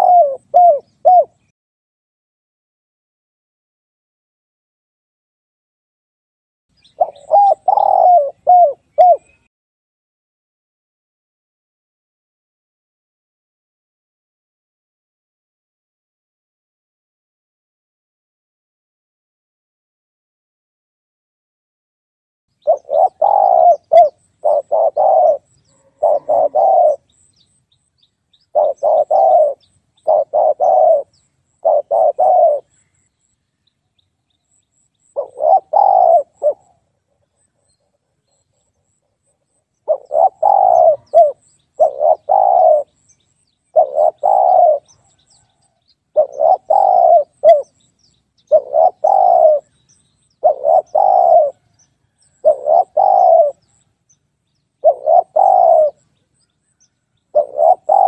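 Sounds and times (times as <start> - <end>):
dove cooing: 0.0 - 1.5, 6.8 - 9.5, 22.6 - 27.3, 28.4 - 32.8, 35.1 - 38.2, 39.8 - 43.0, 43.7 - 47.8, 48.4 - 49.8, 50.4 - 53.8, 54.8 - 56.1, 57.3 - 58.0.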